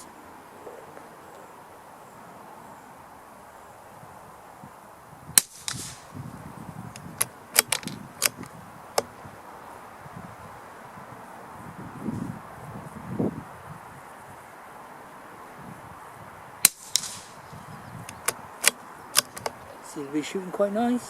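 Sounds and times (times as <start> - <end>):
rifle bolt metallic clicks: 5.4 - 6.0, 6.9 - 9.1, 16.6 - 17.3, 18.1 - 19.6
rifle shot crack: 5.4 - 6.2, 16.6 - 17.5.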